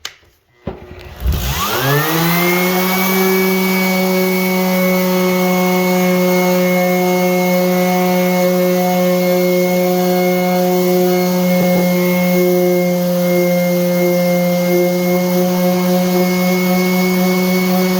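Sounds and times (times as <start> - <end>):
electric motor whine: 1.1 - 17.9.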